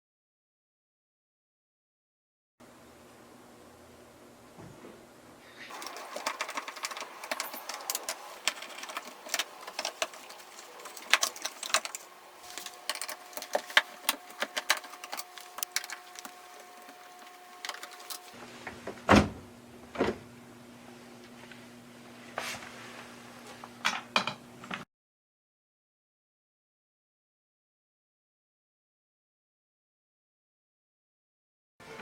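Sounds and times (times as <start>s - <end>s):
small clicks and clatter of parts: 5.7s - 18.4s.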